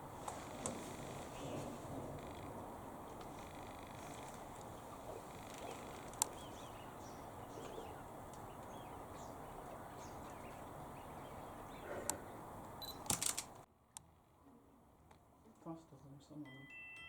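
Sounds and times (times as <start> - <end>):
outdoor background noise: 0.0 - 17.0
faint bird chirps: 4.9 - 13.0
sharp clicks: 6.0 - 6.4, 12.0 - 13.7.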